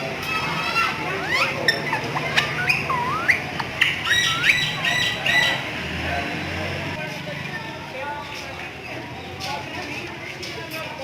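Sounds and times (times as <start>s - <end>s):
parrot squawking: 0.2s - 5.7s.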